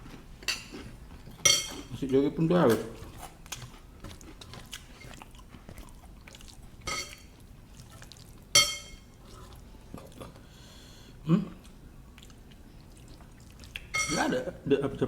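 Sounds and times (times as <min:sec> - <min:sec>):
chewing: 0:00.0 - 0:02.0, 0:02.7 - 0:10.6, 0:11.5 - 0:14.1
cutlery clinking on tableware: 0:00.4 - 0:00.8, 0:01.4 - 0:01.9, 0:06.9 - 0:07.3, 0:08.6 - 0:09.1, 0:13.9 - 0:14.3.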